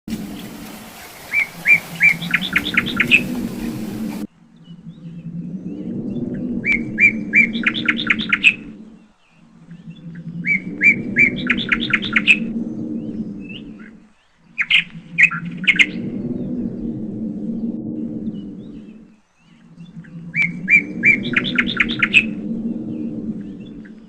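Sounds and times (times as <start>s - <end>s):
low hum: 0.1s - 14.2s, 14.9s - 24.0s
bird calling with quick high chirps: 0.4s - 4.7s.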